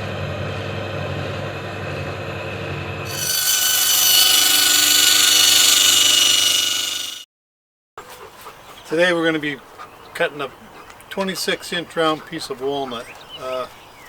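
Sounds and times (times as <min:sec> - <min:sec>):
saw blade cutting log: 0:03.1 - 0:07.2
sawmill engine humming: 0:03.1 - 0:07.2.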